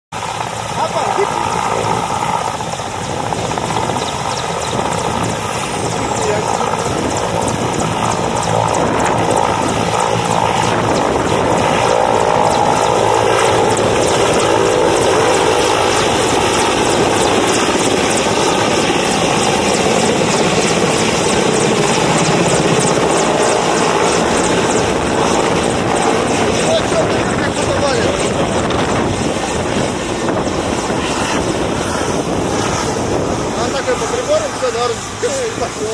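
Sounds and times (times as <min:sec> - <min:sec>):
helicopter turbine noise: 0:00.1 - 0:35.9
rotor blades beating: 0:00.2 - 0:35.9.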